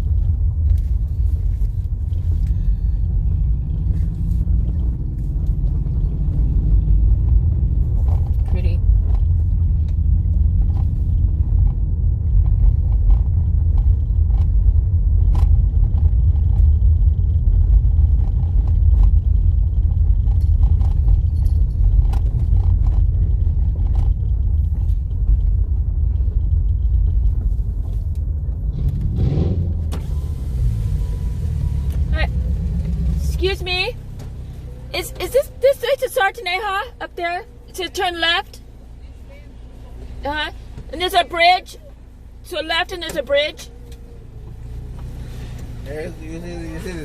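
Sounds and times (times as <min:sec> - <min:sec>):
knocks and rattles over bumps: 0:00.0 - 0:30.1
tyres rumbling on dirt road: 0:00.0 - 0:47.0.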